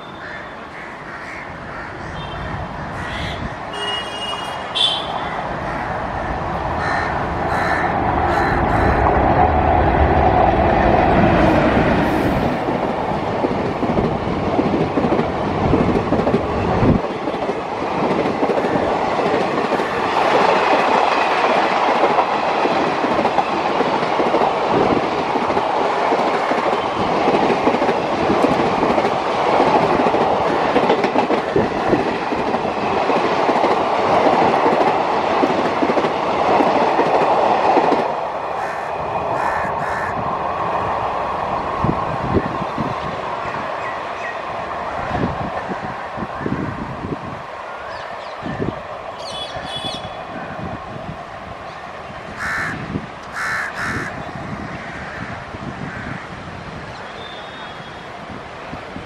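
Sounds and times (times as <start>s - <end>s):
train wheels clicking over rail joints: 12.0s - 40.0s.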